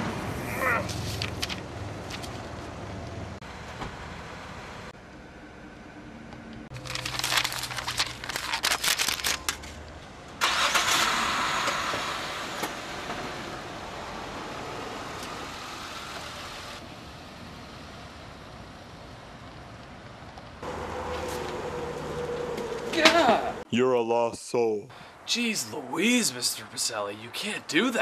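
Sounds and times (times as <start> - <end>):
car engine starting and pulling away: 10.4 - 23.6.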